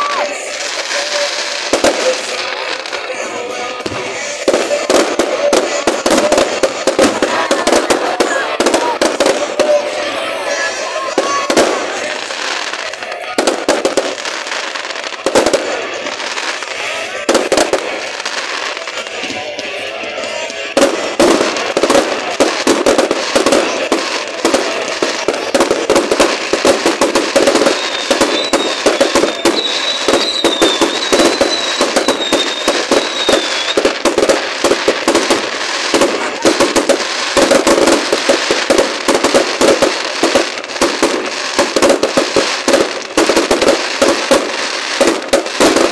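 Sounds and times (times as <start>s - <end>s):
fireworks bangs and crackles: 0.0s - 45.9s
wavering high whistle: 27.6s - 33.8s.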